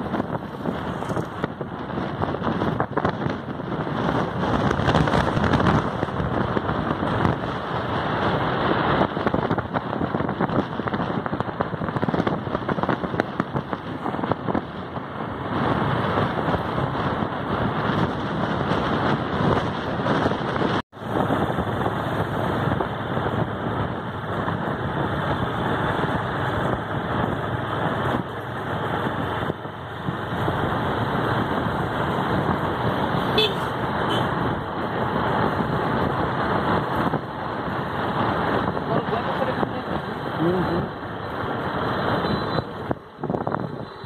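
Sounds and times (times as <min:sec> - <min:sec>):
vehicle engine and road noise: 0:00.0 - 0:44.0
wind rushing past microphone: 0:00.0 - 0:44.0.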